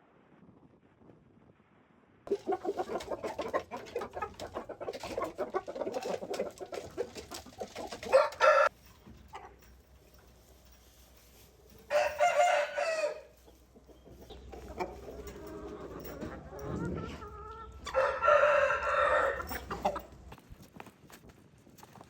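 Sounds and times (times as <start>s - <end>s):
rooster crowing: 8.1s - 8.7s, 11.9s - 13.4s, 17.8s - 19.7s.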